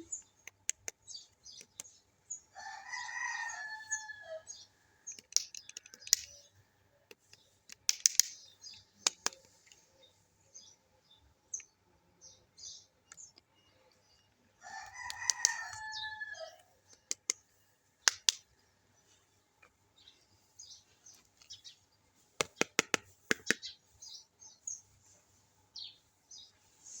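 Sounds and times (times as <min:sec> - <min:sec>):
plastic toy pieces clicking: 0:05.1 - 0:06.3, 0:07.7 - 0:08.4.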